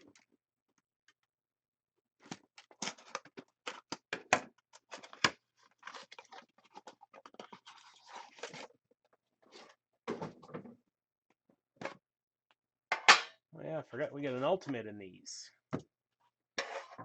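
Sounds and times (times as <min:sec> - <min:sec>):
scratchy rustling of packaging: 0:04.8 - 0:08.8.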